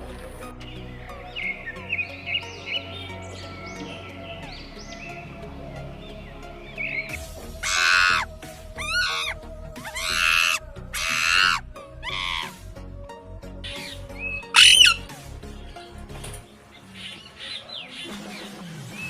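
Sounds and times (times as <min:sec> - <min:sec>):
faint background music: 0:00.0 - 0:19.0
animal calling loudly: 0:07.0 - 0:12.6, 0:13.7 - 0:15.1.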